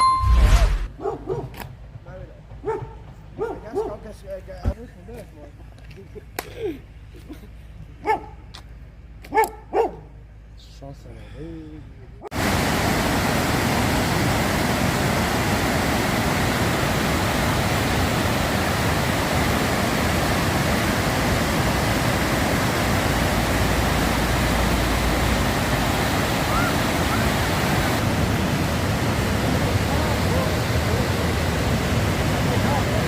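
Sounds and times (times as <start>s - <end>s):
large waterfall roaring: 12.3s - 33.0s.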